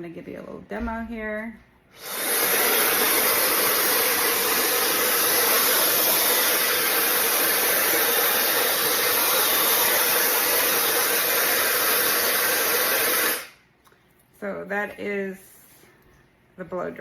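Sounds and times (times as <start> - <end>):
hair dryer blowing: 1.9 - 13.6.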